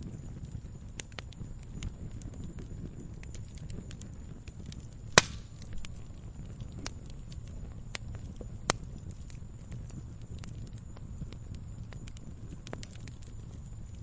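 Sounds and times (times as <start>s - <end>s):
wood fire crackling: 0.0s - 14.0s
sharp loud fire pop: 5.1s - 5.6s.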